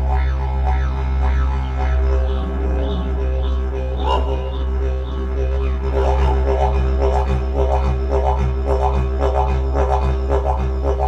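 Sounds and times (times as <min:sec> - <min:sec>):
didgeridoo drone: 0:00.0 - 0:11.0.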